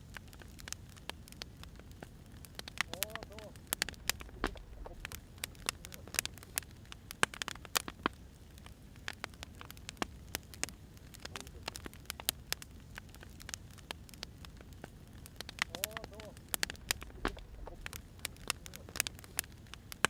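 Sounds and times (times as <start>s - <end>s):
firewood crackling and popping: 0.0s - 20.0s
low steady rumble: 1.7s - 7.2s, 14.1s - 19.8s.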